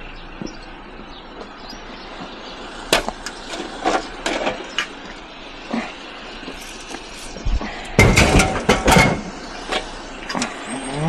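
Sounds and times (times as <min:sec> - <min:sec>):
scrap metal knocks and clatters: 0:02.9 - 0:05.0, 0:06.5 - 0:09.9.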